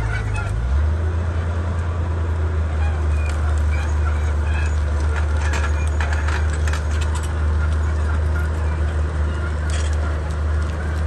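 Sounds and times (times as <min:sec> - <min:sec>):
bulldozer diesel engine drone: 0:00.0 - 0:11.0
metallic clicks and clatter: 0:04.6 - 0:08.5, 0:09.6 - 0:11.0.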